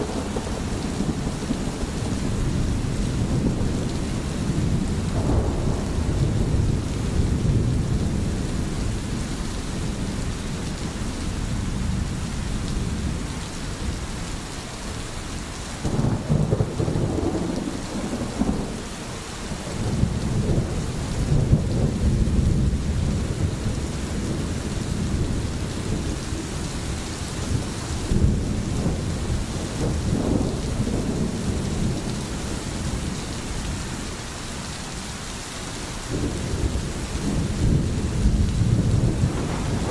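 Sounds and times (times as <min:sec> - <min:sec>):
low rolling thunder: 0:00.0 - 0:14.0, 0:15.8 - 0:34.2, 0:36.1 - 0:39.9
steady rain falling: 0:00.0 - 0:39.9.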